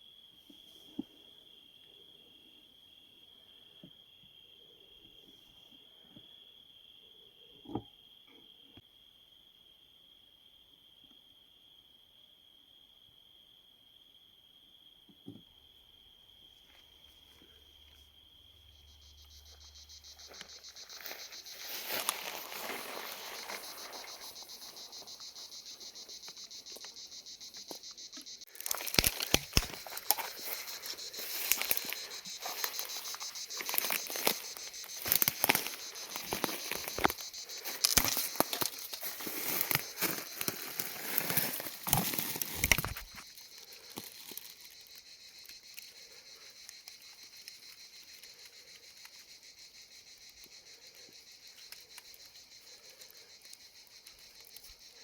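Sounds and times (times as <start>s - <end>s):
crickets chirping: 0.0s - 55.0s
irregular crackles and clicks: 20.2s - 49.2s.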